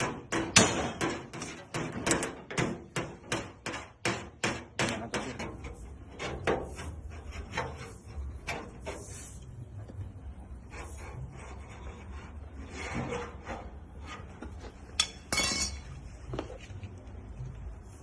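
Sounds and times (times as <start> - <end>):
hammer striking sheet metal: 0.0 - 6.8.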